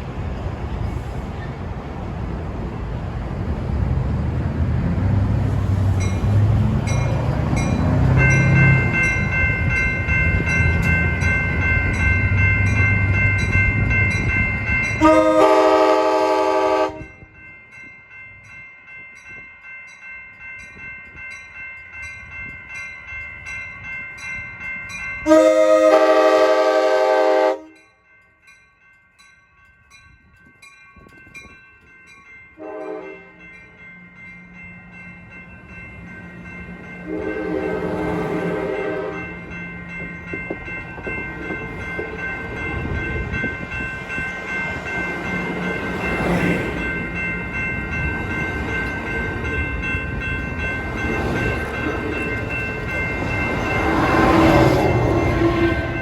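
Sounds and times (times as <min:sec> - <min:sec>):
train rumble: 0:00.0 - 0:17.8, 0:29.9 - 0:56.0
train air horn blasts: 0:15.0 - 0:17.1, 0:25.2 - 0:27.8, 0:32.6 - 0:33.4, 0:37.1 - 0:39.3, 0:53.9 - 0:56.0.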